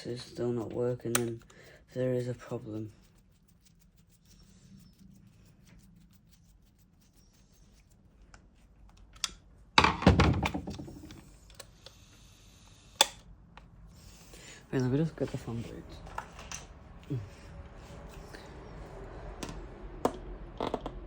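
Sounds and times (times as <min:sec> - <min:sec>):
loud plastic clatter: 0:09.8 - 0:11.2.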